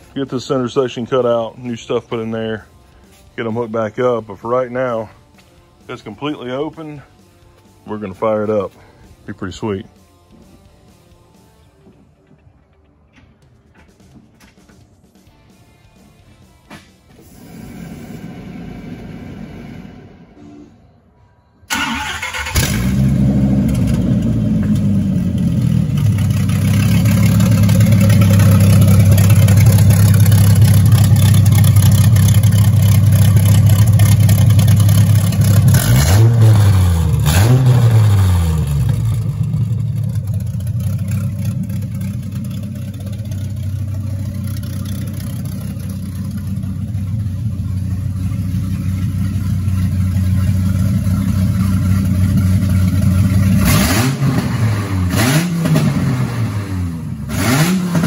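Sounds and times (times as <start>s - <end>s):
car engine cranking: 21.7s - 56.5s
engine revving: 21.7s - 58.0s
car engine idling loudly: 22.6s - 54.4s.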